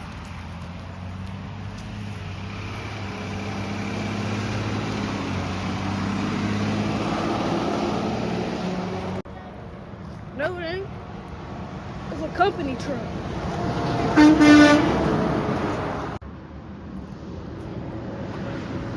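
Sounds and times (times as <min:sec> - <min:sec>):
truck engine driving past: 0:00.0 - 0:18.9.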